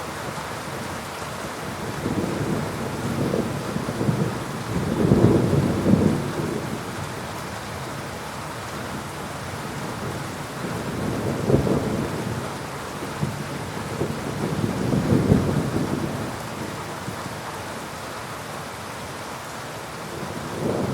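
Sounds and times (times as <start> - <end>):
heavy rain hissing: 0.0 - 20.9
thunder rumbling: 1.8 - 7.0, 13.2 - 16.4, 20.2 - 20.9.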